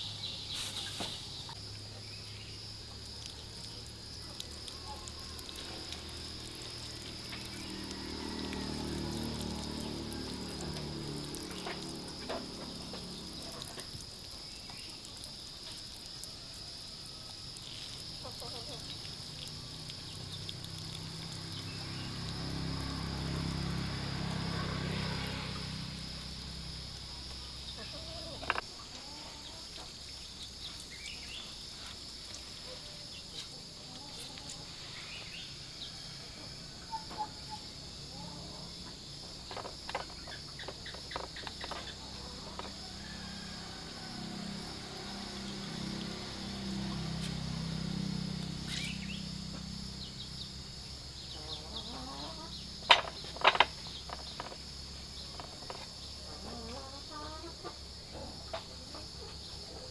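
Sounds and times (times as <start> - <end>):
high insect drone: 0.0 - 59.9
bird chirps: 48.6 - 49.3.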